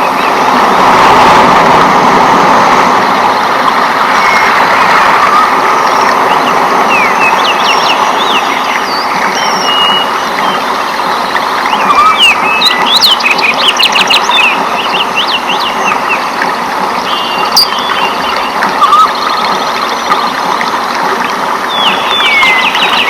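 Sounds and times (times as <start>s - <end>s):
birds chirping: 4.1s - 20.8s, 21.5s - 23.0s.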